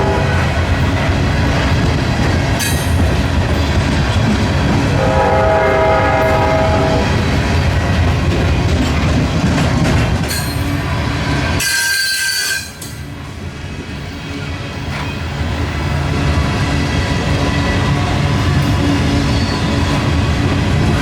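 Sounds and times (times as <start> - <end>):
train horn chord: 0.0 - 0.9, 4.9 - 7.3
train rumbling by: 0.0 - 21.0
wheel squeals: 19.1 - 19.9.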